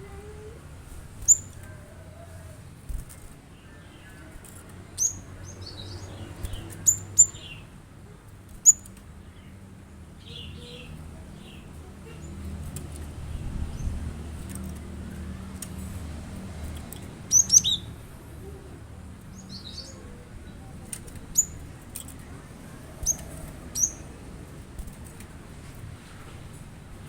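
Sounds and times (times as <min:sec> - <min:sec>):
bird chirping: 0:01.2 - 0:02.3, 0:04.9 - 0:07.7, 0:17.0 - 0:18.7, 0:22.8 - 0:24.2.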